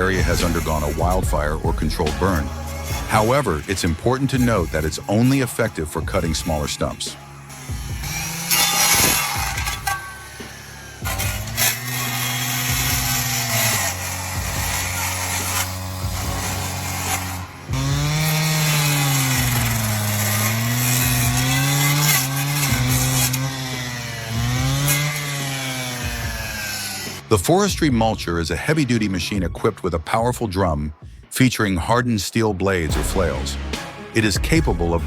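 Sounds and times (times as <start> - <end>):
rasp of cutting stumps: 0.0 - 27.2
stump cutter engine: 0.0 - 27.3.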